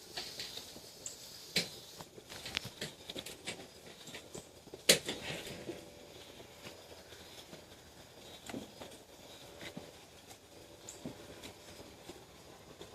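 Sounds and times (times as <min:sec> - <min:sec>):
kittens tapping and scuffling: 0:00.0 - 0:12.9.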